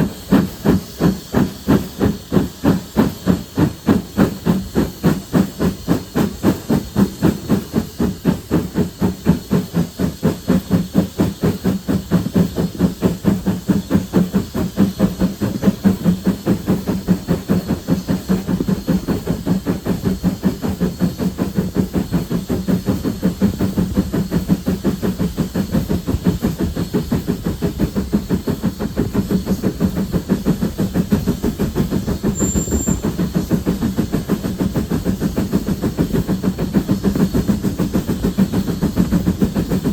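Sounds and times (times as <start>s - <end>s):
steam hissing: 0.0s - 39.9s
steam locomotive exhaust beats: 0.0s - 39.9s.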